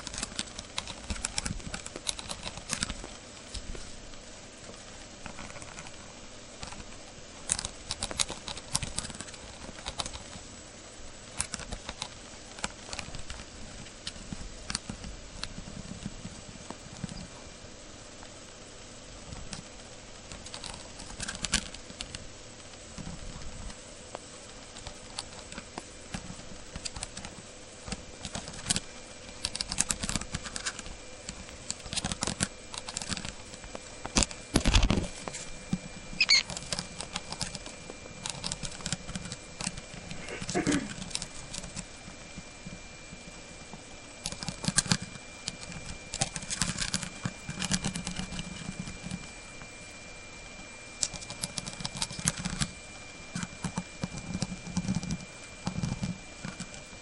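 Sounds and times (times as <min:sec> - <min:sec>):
bird crunching dry noodles: 0:00.0 - 0:10.4, 0:19.2 - 0:42.8, 0:44.2 - 0:49.4, 0:51.0 - 0:56.9.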